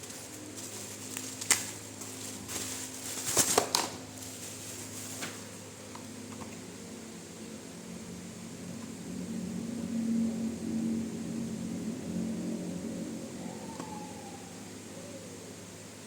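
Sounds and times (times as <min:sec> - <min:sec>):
low steady hum: 0:00.0 - 0:16.0
packaging rustling and clicking: 0:01.1 - 0:05.5.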